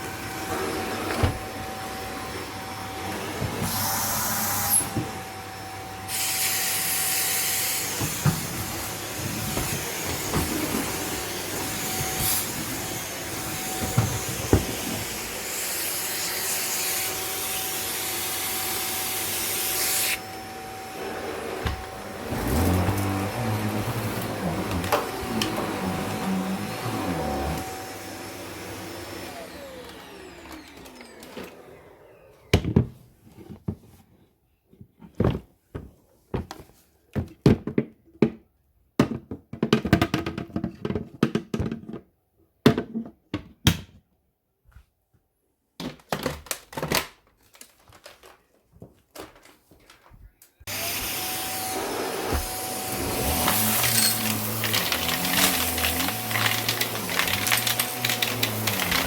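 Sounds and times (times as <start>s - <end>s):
vacuum cleaner motor: 0.0s - 32.8s, 50.7s - 59.0s.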